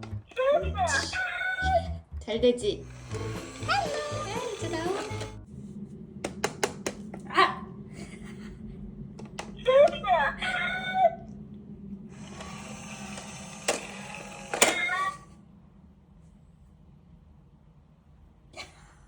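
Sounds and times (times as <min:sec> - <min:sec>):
long buzzy sound: 0:01.7 - 0:06.0.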